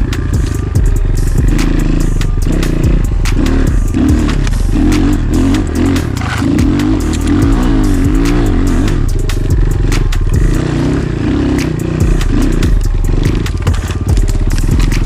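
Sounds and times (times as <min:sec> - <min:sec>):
motorcycle engine revving: 0:00.0 - 0:15.0
sharp knocks and clatter: 0:11.6 - 0:15.0.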